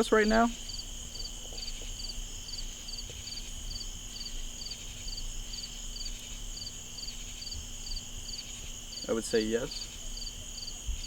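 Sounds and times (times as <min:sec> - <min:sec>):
crickets trilling: 0:00.0 - 0:11.0
insect triple-pulsed chirp: 0:00.5 - 0:11.0.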